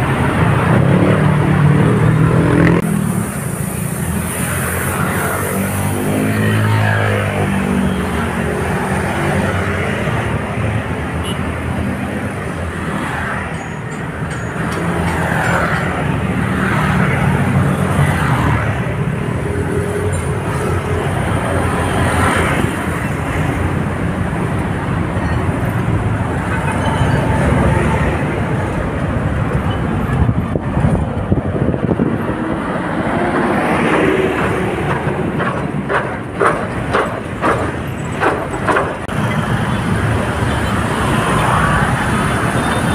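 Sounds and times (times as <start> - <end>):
road traffic passing: 0.0 - 42.9.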